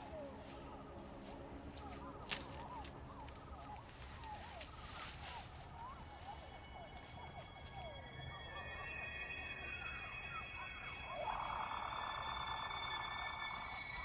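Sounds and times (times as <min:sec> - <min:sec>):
high held music tones: 0:06.0 - 0:14.0.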